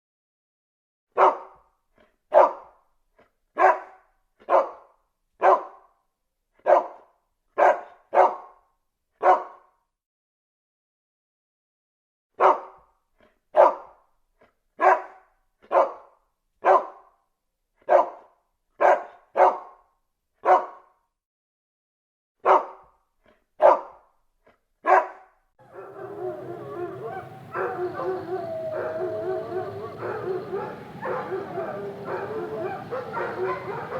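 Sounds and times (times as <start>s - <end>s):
dog barking: 1.2s - 1.6s, 2.3s - 2.7s, 3.6s - 5.9s, 6.6s - 8.6s, 9.2s - 9.7s, 12.4s - 12.9s, 13.5s - 14.0s, 14.8s - 17.1s, 17.8s - 19.8s, 20.4s - 20.9s, 22.4s - 22.9s, 23.6s - 24.0s, 24.8s - 33.9s
continuous steady tone: 25.6s - 33.9s.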